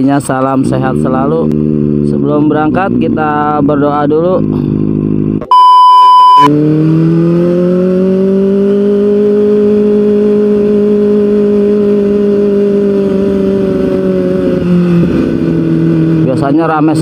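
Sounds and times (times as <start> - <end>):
motorcycle engine running: 0.0 - 5.5, 6.4 - 17.0
test-tone beep: 5.4 - 6.5.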